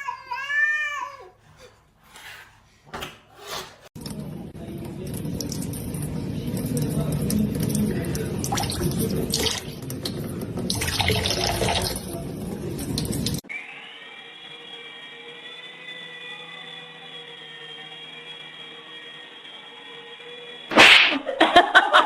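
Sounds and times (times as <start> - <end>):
tap water running: 4.0 - 13.4.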